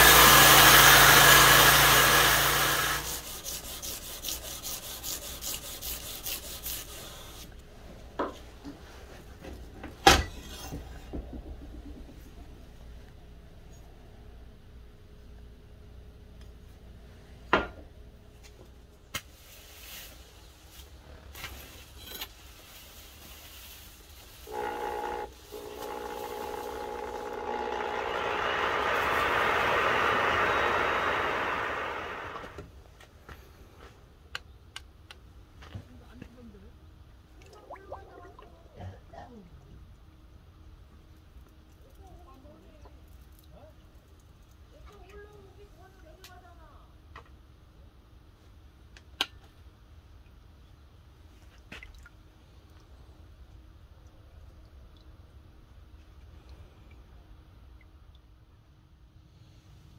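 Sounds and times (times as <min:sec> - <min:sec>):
sandpaper scraping steel blade: 0:00.0 - 0:07.5
forge fire roaring: 0:28.0 - 0:32.6.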